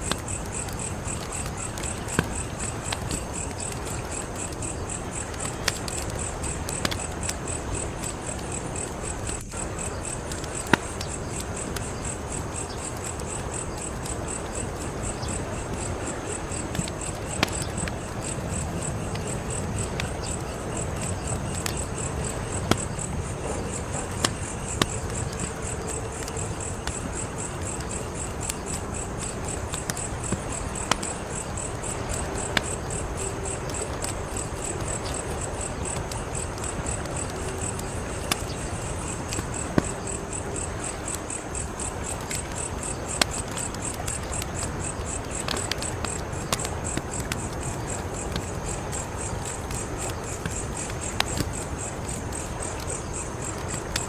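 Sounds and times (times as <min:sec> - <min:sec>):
crickets chirping: 0:00.0 - 0:54.0
wood fire crackling and popping: 0:00.0 - 0:54.0.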